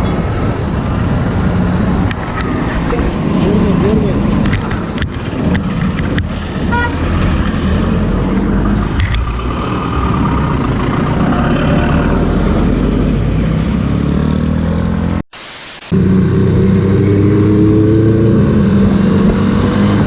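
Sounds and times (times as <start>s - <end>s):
wind and road noise: 0.0s - 20.0s
motorcycle horn toot: 6.7s - 7.0s.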